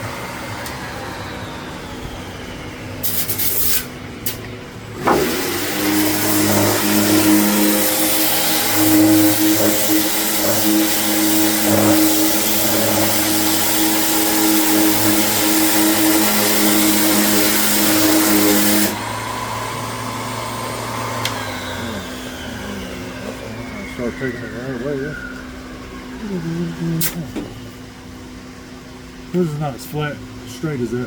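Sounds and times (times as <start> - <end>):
faint falling whine: 0.0 - 3.1, 18.9 - 31.0
power sander whirring: 0.0 - 26.4.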